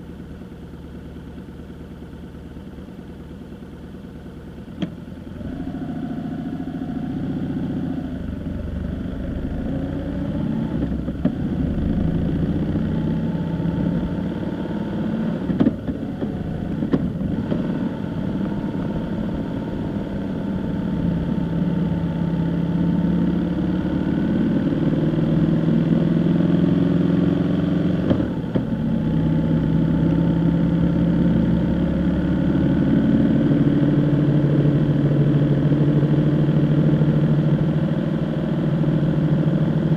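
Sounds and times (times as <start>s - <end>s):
vehicle engine driving: 0.0s - 39.9s.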